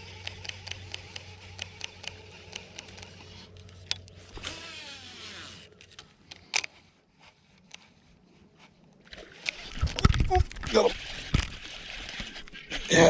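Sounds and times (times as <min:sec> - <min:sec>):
fishing reel spool whirring: 0:00.0 - 0:06.0, 0:09.1 - 0:12.9
fishing reel click: 0:00.0 - 0:06.8, 0:09.2 - 0:10.2.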